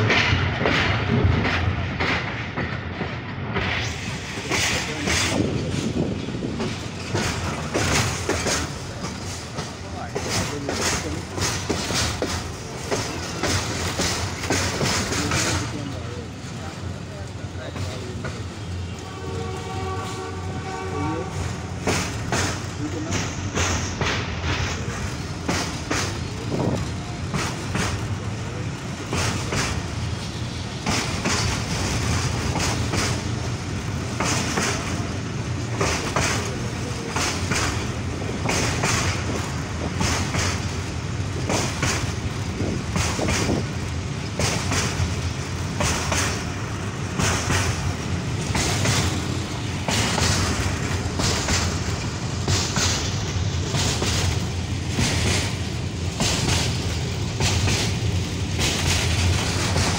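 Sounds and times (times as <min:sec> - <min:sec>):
rushing air: 0:00.0 - 0:09.8
train wheels rumbling on track: 0:00.0 - 0:59.9.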